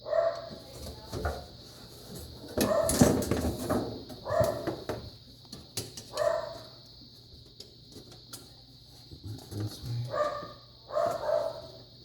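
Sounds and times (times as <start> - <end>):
dog barking: 0.0 - 0.5, 2.6 - 3.0, 4.2 - 4.7, 6.1 - 6.6, 10.1 - 11.8.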